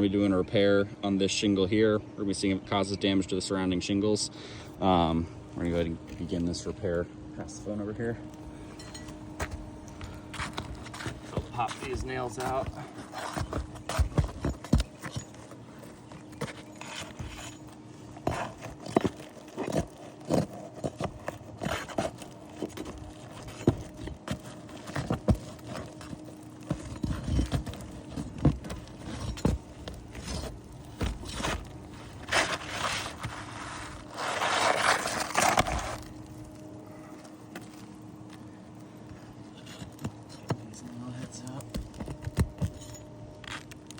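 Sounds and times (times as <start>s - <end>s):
faint steady hum: 0.0s - 43.9s
tool knocking and scraping shingles: 9.0s - 36.1s, 39.6s - 43.8s
long scraping rush: 30.1s - 39.8s.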